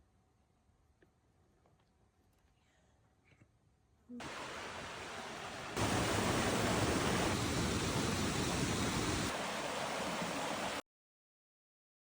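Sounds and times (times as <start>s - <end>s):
steady rushing noise: 4.3s - 10.8s.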